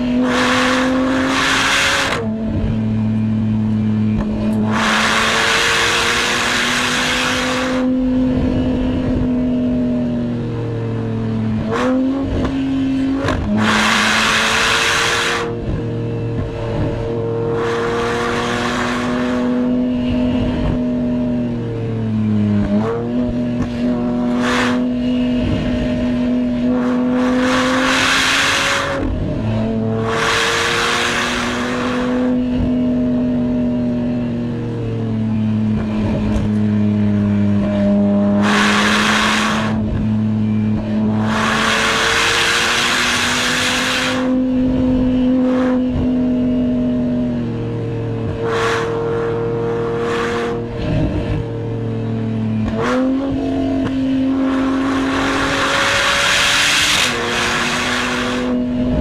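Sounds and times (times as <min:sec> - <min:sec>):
car engine driven hard: 0:00.0 - 0:59.0
loud rushing noise: 0:38.2 - 0:44.4.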